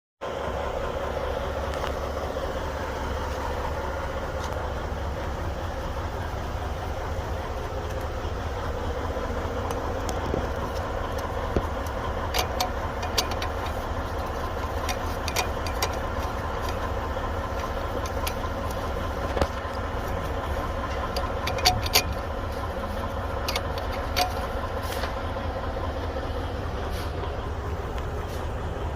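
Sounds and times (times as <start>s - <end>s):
diesel truck engine idling: 0.2s - 28.9s
sharp metallic clicks: 6.8s - 26.3s.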